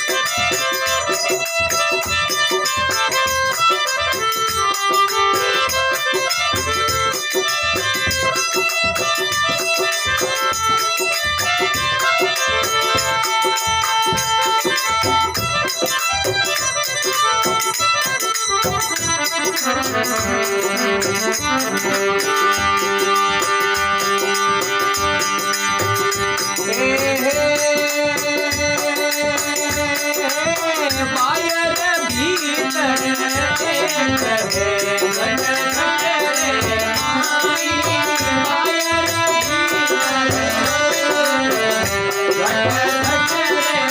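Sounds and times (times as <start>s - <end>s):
folk melody: 0.0s - 43.9s
rattling percussion beat: 0.0s - 43.9s.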